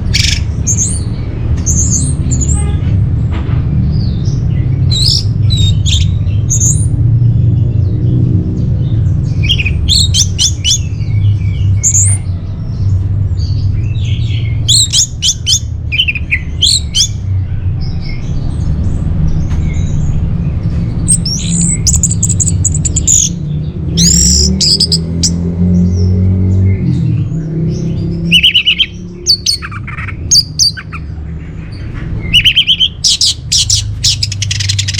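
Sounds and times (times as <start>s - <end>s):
thrush singing: 21.0s - 34.9s.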